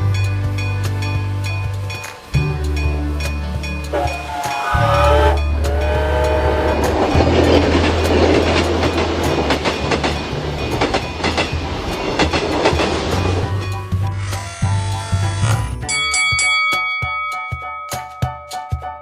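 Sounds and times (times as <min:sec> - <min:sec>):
train horn: 0:03.9 - 0:07.2
train wheels clattering over rails: 0:05.6 - 0:14.0.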